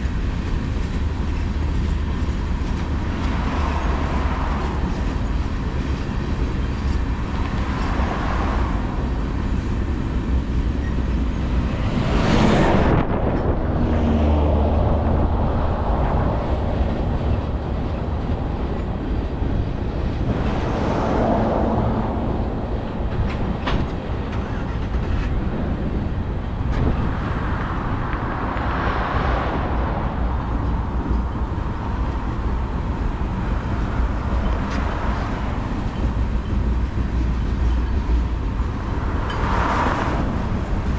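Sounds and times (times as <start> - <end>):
freight train wheels rumbling: 0.0 - 40.9
road vehicles passing: 0.0 - 40.9.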